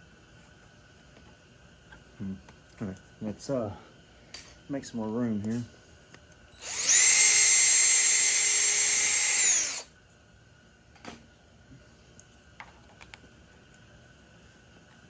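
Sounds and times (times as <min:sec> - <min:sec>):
power tool whining: 0:06.6 - 0:09.9.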